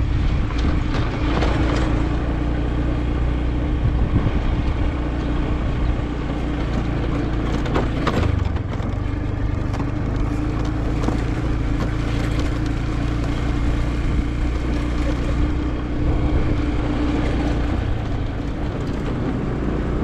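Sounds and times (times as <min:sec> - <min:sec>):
motorbike engine running: 0:00.0 - 0:20.0
steady rushing noise: 0:00.0 - 0:20.0.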